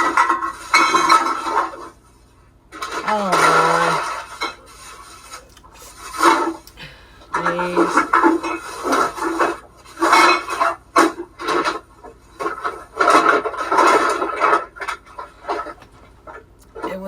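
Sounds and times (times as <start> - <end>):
person breathing heavily: 6.7 - 7.4.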